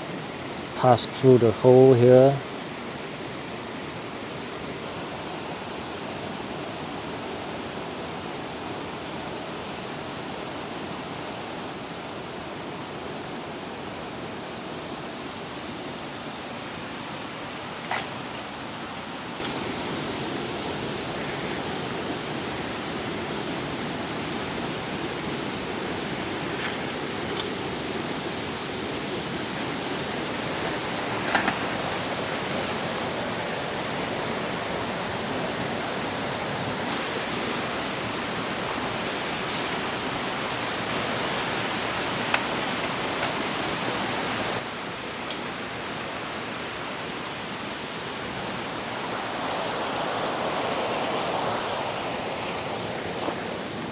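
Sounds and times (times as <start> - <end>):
river rushing over rocks: 0.0 - 53.9
thin high whine: 19.4 - 44.6.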